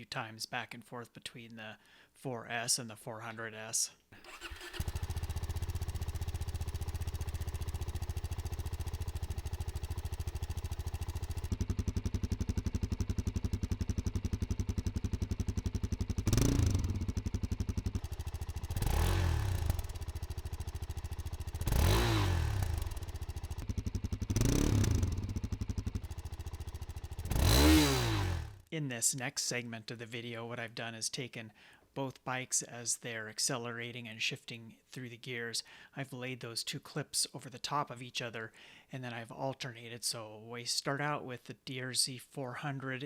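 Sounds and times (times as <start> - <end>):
motorcycle engine idling: 4.2 - 28.6
motorcycle throttle blips: 4.2 - 28.6.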